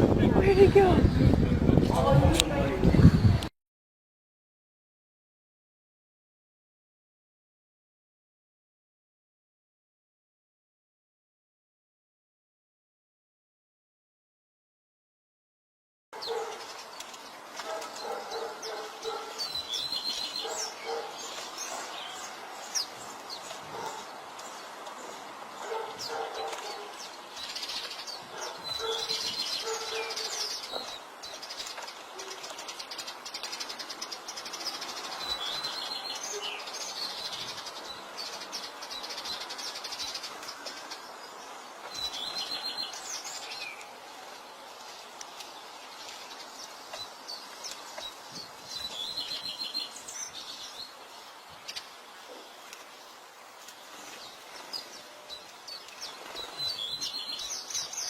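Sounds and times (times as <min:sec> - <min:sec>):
outdoor background noise: 0:00.0 - 0:03.5, 0:16.2 - 0:58.0.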